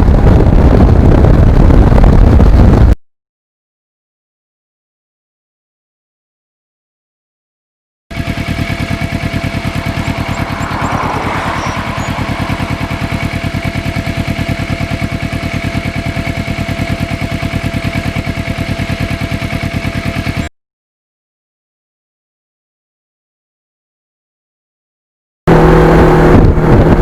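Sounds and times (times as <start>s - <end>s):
motorcycle engine running: 0.0s - 3.0s, 8.1s - 20.5s, 25.5s - 27.0s.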